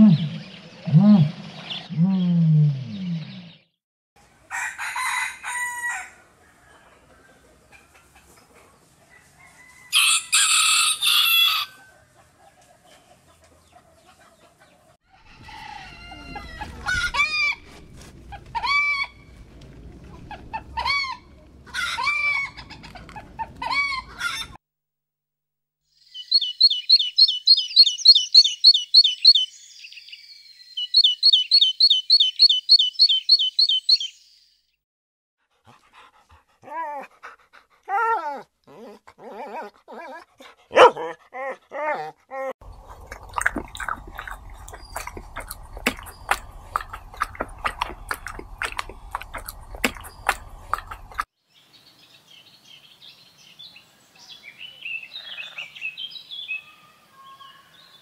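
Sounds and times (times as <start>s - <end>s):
arching fowl calls: 15.2s - 19.4s, 20.3s - 24.6s
fowl squawk: 18.5s - 19.2s, 20.6s - 22.8s.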